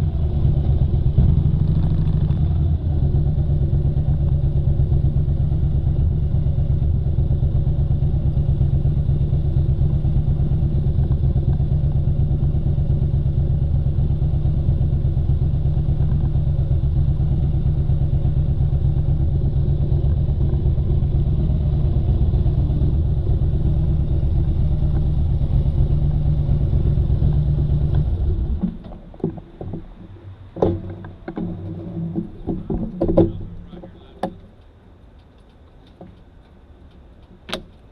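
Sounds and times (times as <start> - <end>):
motorcycle engine running: 0.0 - 28.8
knocks and clatter: 27.3 - 34.6.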